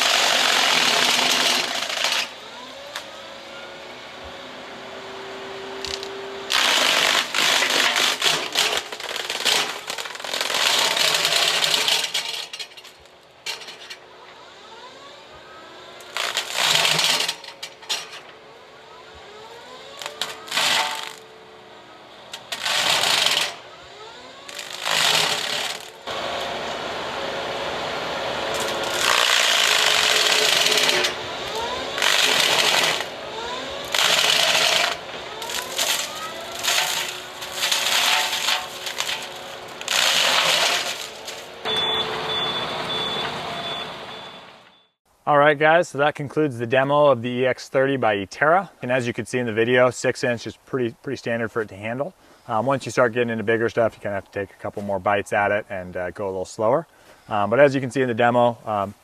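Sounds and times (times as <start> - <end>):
flail mower chewing through brush: 28.5 - 41.9.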